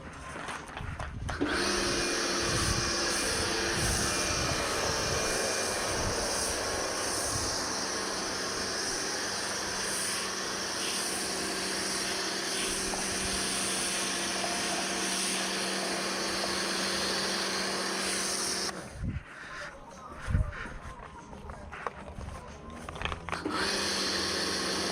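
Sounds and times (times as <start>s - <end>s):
pressure washer spraying: 1.4s - 18.8s, 23.4s - 24.9s.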